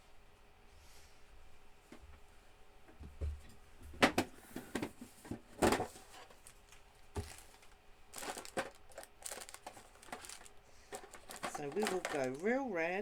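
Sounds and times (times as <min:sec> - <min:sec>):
markers rattling clatter: 0:07.2 - 0:12.6.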